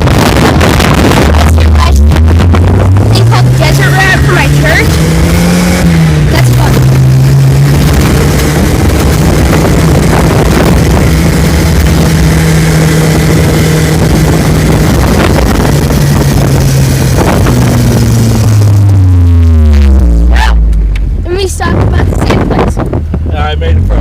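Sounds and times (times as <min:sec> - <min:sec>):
off-road vehicle engine: 0:00.0 - 0:24.0.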